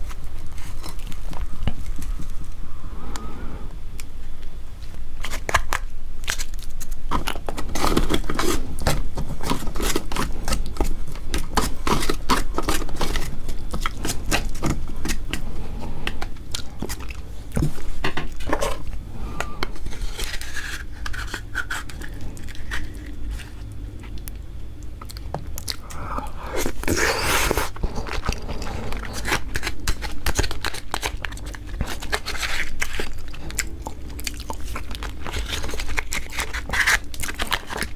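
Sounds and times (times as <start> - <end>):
crab shell cracking and crunching: 5.2 - 15.4, 16.0 - 37.9
wet chewing and sucking: 5.2 - 37.9.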